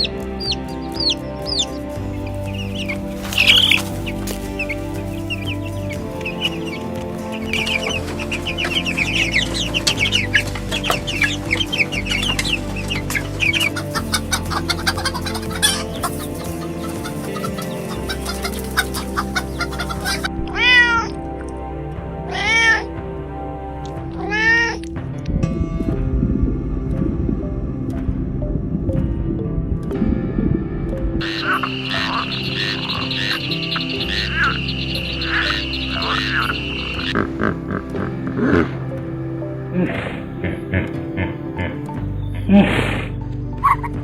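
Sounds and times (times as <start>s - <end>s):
chickens clucking: 0.0s - 20.4s, 31.2s - 38.8s, 39.8s - 44.0s
background music: 0.0s - 44.0s
cat meowing: 20.4s - 21.1s.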